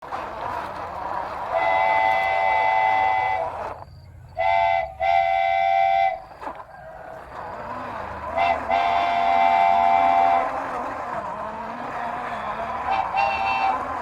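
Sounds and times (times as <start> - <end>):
multi-tone horn blasts: 1.5 - 3.8, 4.4 - 6.3, 8.4 - 10.8, 12.1 - 14.0.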